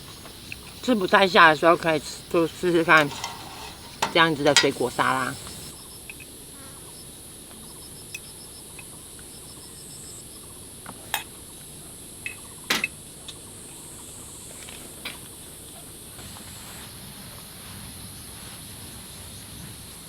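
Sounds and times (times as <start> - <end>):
insect chirps: 0.0 - 20.0
insects droning: 0.0 - 20.0
utensil clinking against bowl: 0.6 - 5.7.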